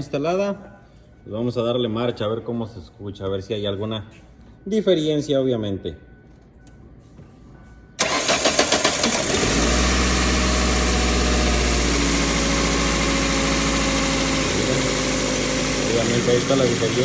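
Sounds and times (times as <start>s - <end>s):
car engine idling: 8.0s - 17.0s
car engine starter cranking: 8.0s - 17.0s.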